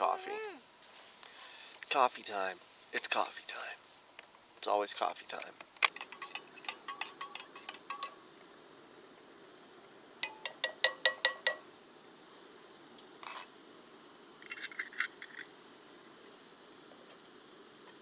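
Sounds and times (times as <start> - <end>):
metal scrape: 5.9 - 8.2, 13.2 - 13.5
metal cookware clinking: 6.0 - 8.2.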